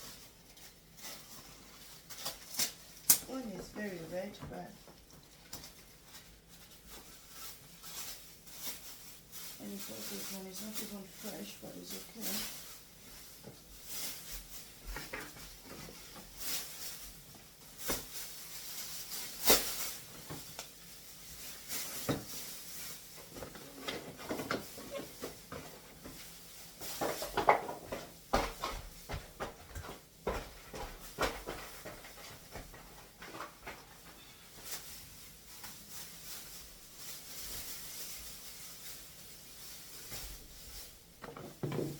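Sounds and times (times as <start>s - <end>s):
groceries and packaging rustling: 0.0s - 41.9s.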